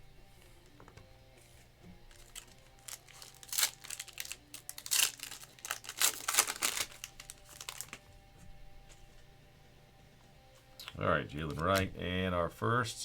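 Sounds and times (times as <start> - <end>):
plastic wrapper crinkling and tearing: 2.1 - 8.0.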